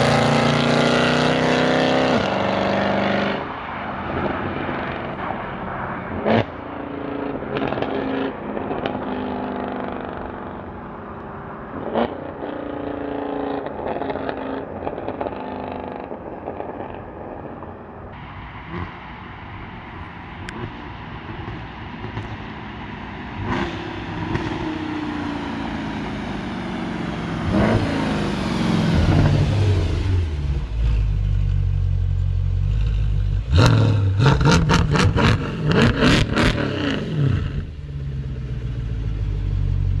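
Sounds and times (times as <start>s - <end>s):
car engine revving: 0.0s - 3.5s, 18.2s - 40.0s.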